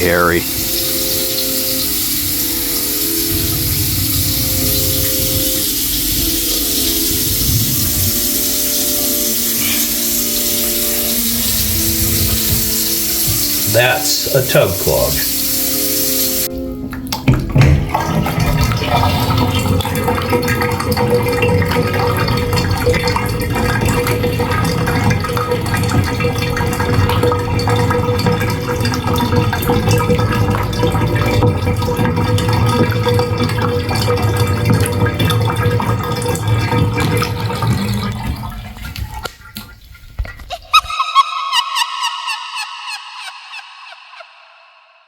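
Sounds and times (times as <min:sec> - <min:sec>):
steady hum: 0:00.0 - 0:16.5
water draining through tub drain: 0:00.0 - 0:41.0.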